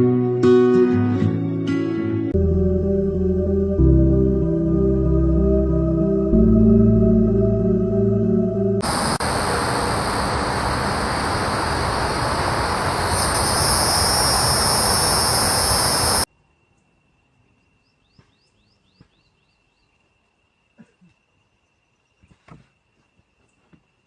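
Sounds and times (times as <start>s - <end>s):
insect chorus: 8.8s - 24.0s.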